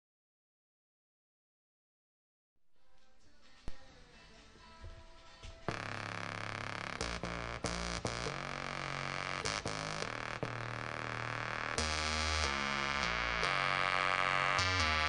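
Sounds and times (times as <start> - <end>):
synthesizer playing notes: 5.7 - 15.0.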